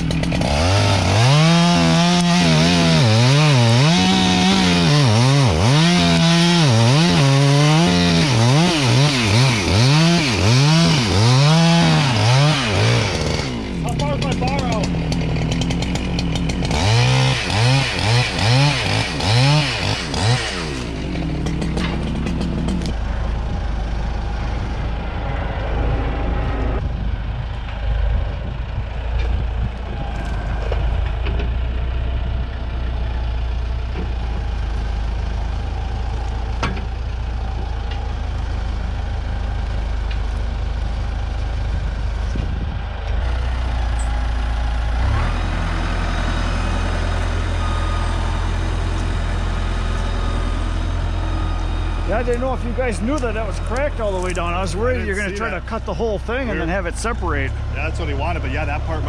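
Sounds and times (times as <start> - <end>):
chainsaw revving: 0.0 - 23.0, 43.2 - 59.0
heavy engine idling: 0.0 - 59.0.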